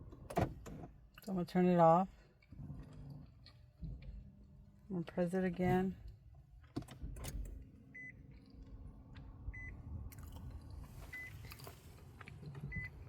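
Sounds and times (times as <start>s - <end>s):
car warning chime beeping: 7.9s - 8.3s, 9.5s - 9.8s, 11.1s - 11.5s, 12.7s - 13.0s.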